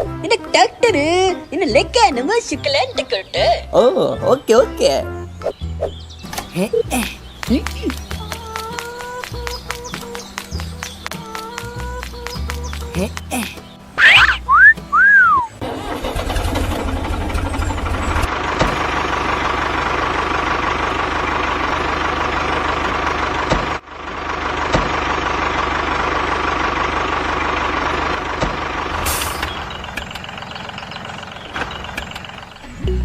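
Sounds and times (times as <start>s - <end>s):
small motor running with whine: 17.1s - 23.8s.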